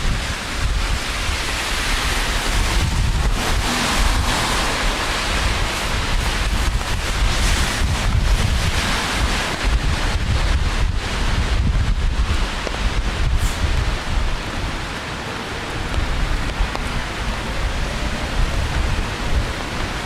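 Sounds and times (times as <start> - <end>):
rain hiss: 0.0 - 20.0
wind buffeting microphone: 0.0 - 20.0.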